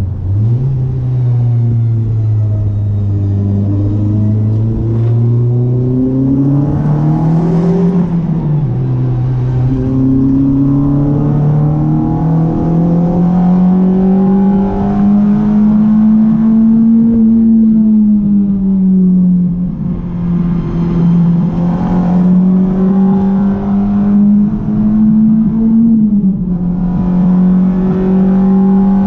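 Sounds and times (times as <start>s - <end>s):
car engine accelerating hard: 0.0s - 29.0s.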